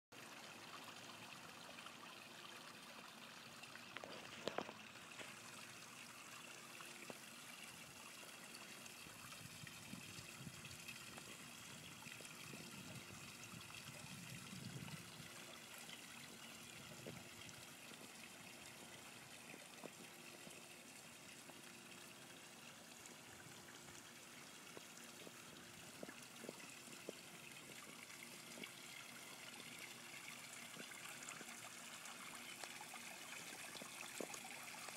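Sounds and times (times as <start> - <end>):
pond waterfall trickling: 0.1 - 34.9.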